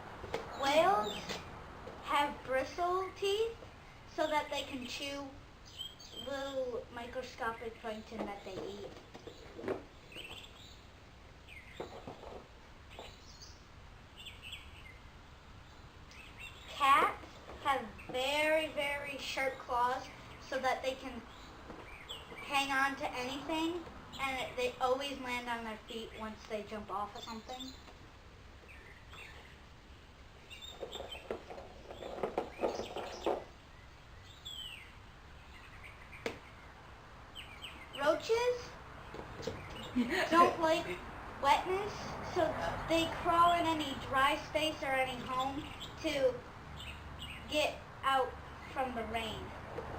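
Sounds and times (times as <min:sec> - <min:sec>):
birds chirping: 0:00.0 - 0:49.9
low background noise: 0:00.0 - 0:49.9
faint bird chirps: 0:04.1 - 0:12.2.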